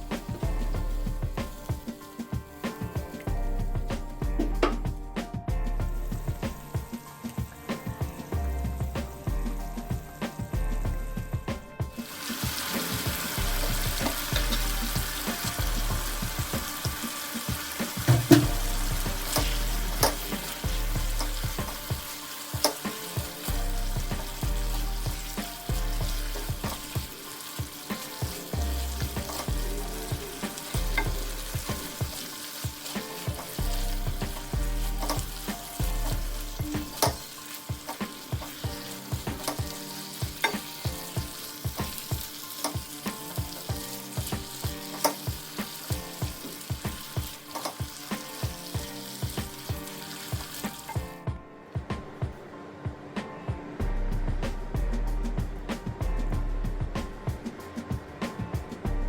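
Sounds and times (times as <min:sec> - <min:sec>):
food sizzling in a pan: 0:00.0 - 0:05.4, 0:06.0 - 0:10.6, 0:11.8 - 0:51.3
utensil knocking against pan: 0:17.8 - 0:20.6.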